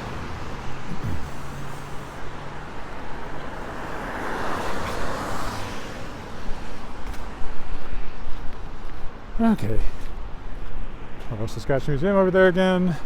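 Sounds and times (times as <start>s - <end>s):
car passing on wet road: 0.0s - 7.4s.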